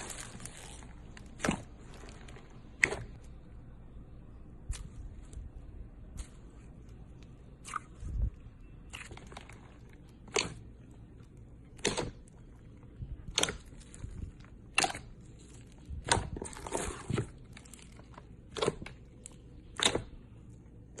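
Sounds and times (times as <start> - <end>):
crunchy slime crackling: 0.0 - 3.4, 8.9 - 21.0.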